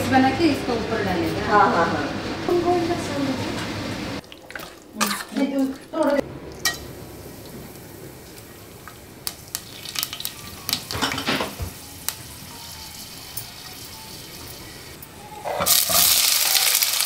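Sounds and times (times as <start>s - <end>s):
onions sizzling loudly in oil: 6.6s - 15.0s, 15.6s - 17.0s
spices sizzling in hot oil: 6.6s - 15.0s, 15.7s - 17.0s.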